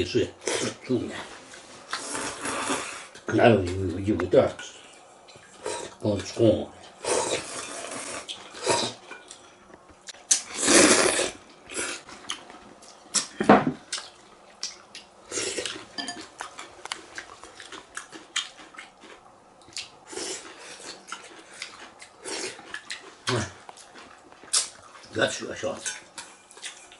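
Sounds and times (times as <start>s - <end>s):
people slurping noodles: 2.0s - 3.1s, 7.0s - 9.0s, 10.5s - 12.0s.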